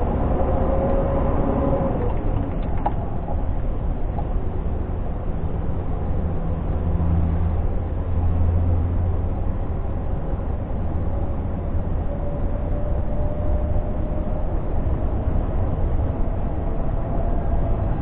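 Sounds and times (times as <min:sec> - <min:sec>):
diesel truck engine drone: 0:00.0 - 0:18.0
faint rising whine: 0:06.8 - 0:18.0.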